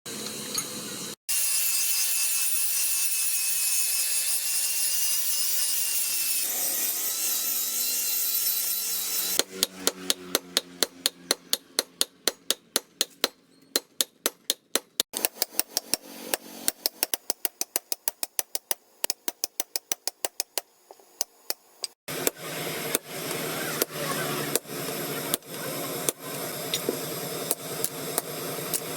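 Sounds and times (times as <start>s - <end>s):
hammer strikes on metal: 9.4s - 20.6s.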